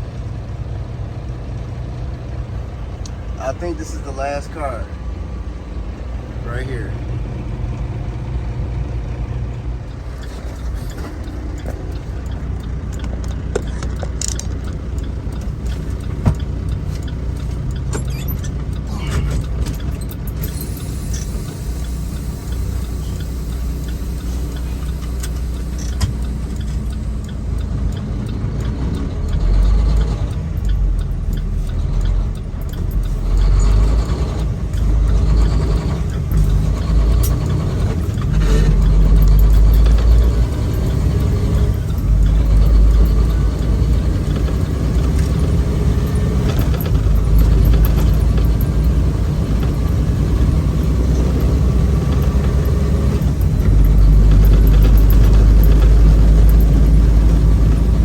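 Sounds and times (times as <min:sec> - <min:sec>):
truck diesel engine running: 0:00.0 - 0:58.0
scattered clicks: 0:24.2 - 0:58.0.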